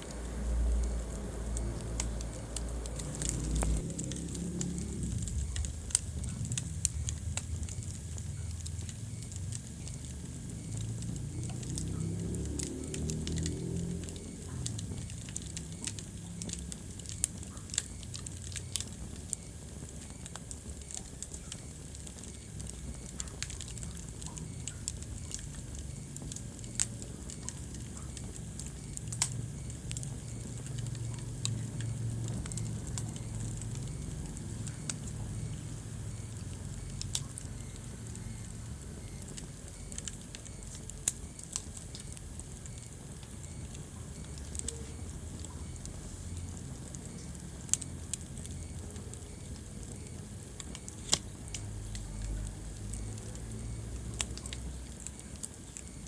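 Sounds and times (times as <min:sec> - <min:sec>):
low rumble of flames: 0:00.0 - 0:56.0
wood fire crackling: 0:00.0 - 0:56.0.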